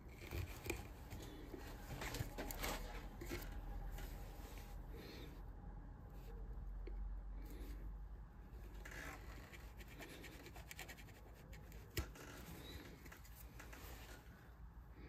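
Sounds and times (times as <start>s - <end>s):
carving tool scraping wood: 0.0s - 3.6s, 8.8s - 13.5s.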